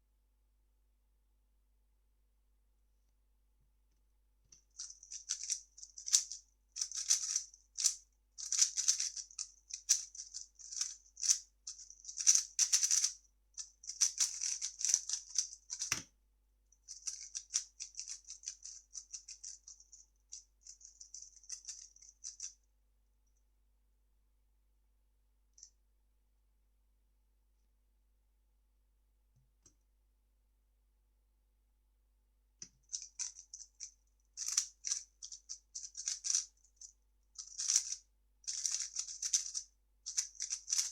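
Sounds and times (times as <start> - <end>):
speed cube clicking and rattling: 4.6 - 16.0, 16.9 - 22.5, 32.8 - 40.9.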